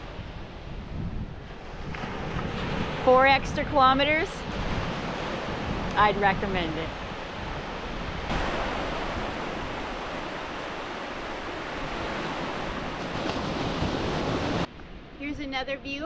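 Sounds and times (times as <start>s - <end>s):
ocean surf on sandy beach: 0.0s - 15.2s.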